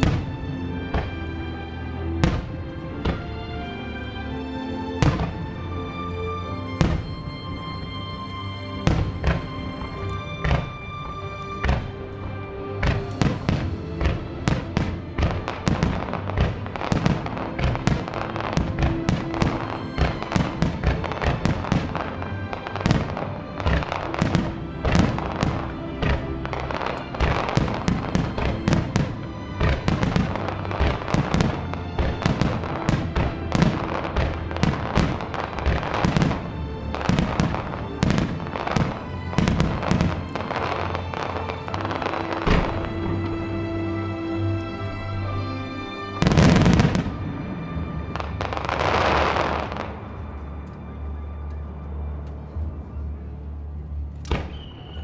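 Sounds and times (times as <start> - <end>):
music with held tones: 0.0 - 55.0.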